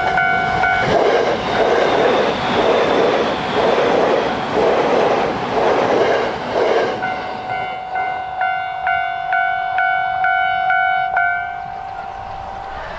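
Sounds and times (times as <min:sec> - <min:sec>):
electronic crossing warning bell: 0:00.0 - 0:00.9, 0:07.0 - 0:12.9
train wheels on rails: 0:00.0 - 0:12.9.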